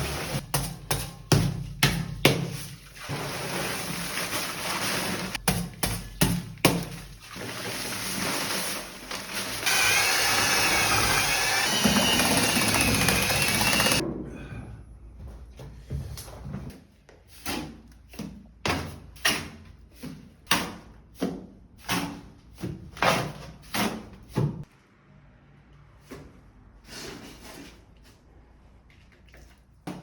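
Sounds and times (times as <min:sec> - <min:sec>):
power tool whining: 0:09.6 - 0:14.0.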